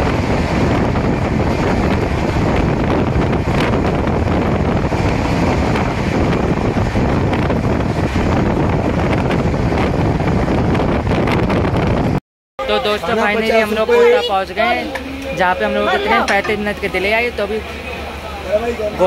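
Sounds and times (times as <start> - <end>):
wind buffeting microphone: 0.0 - 12.2
passenger train rumbling: 0.0 - 19.0.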